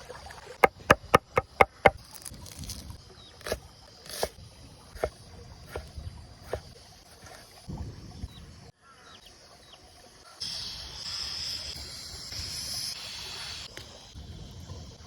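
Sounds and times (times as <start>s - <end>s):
sharp knocks: 0.6s - 2.0s.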